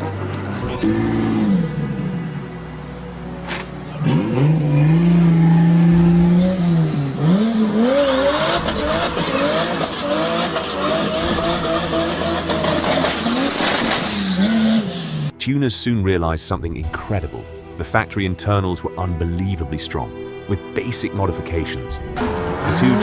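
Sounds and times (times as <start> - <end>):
car engine revving: 0.0 - 15.3, 22.0 - 23.0.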